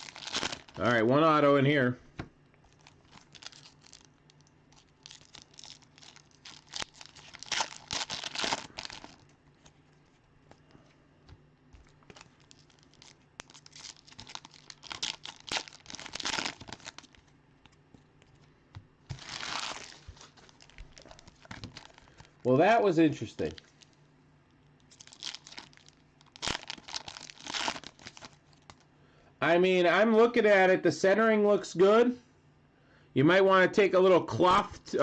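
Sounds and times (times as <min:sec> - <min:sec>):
card pack wrappers tearing: 0:00.0 - 0:00.9, 0:02.7 - 0:09.2, 0:12.0 - 0:17.3, 0:19.1 - 0:22.3, 0:24.9 - 0:28.8.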